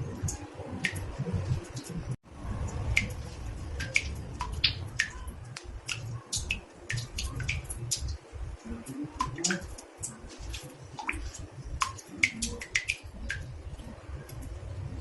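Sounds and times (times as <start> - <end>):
water dripping into a bathtub: 0.0 - 15.0.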